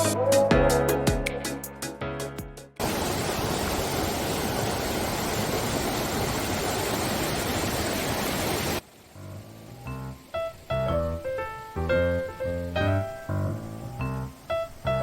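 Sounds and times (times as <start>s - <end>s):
stream water rushing: 2.8s - 11.9s.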